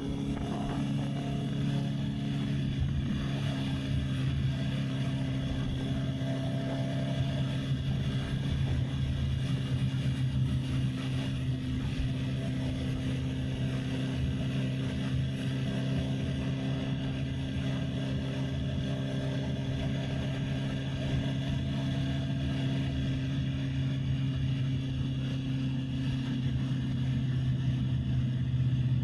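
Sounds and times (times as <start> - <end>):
wind buffeting microphone: 0.0 - 22.8
motorcycle engine cruising: 0.0 - 29.0.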